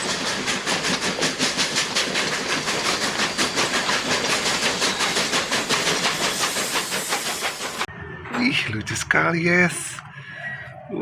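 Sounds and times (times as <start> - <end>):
steam locomotive chuffing: 0.0 - 7.9
train wheels clickety-clack: 0.0 - 7.9.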